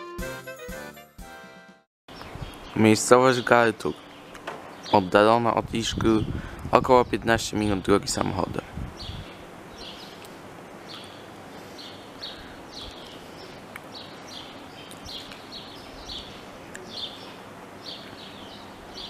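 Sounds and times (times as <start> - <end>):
outdoor background noise: 2.1 - 19.0
small bird chirping: 9.0 - 19.0.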